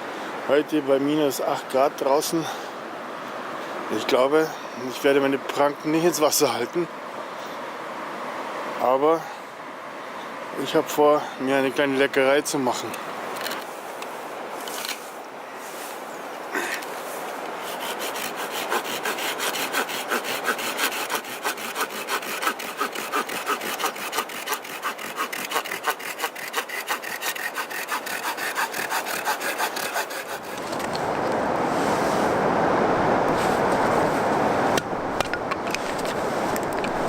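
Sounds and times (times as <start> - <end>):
hand saw cutting wood: 17.6 - 30.8
steady rushing noise: 28.3 - 37.0.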